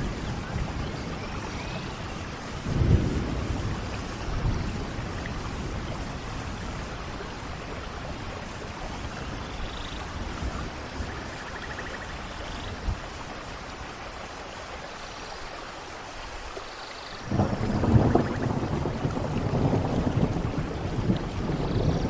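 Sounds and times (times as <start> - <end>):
deep thunder rumble: 0.0 - 9.4, 17.3 - 22.0
heavy rain falling: 0.0 - 22.0.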